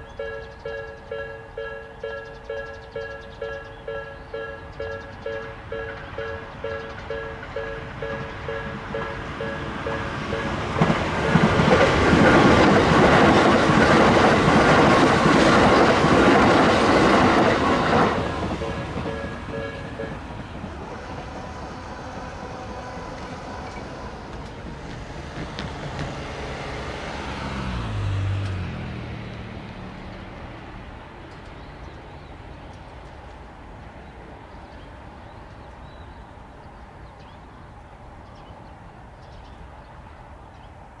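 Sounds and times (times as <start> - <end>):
electric train running: 0.2 - 30.2
vehicle passing with low drone: 4.4 - 34.8.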